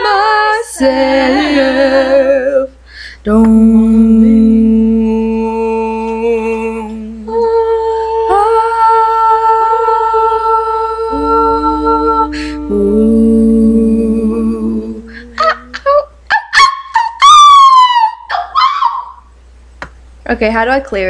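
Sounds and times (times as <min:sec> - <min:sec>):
voices humming held notes: 0:00.0 - 0:16.3.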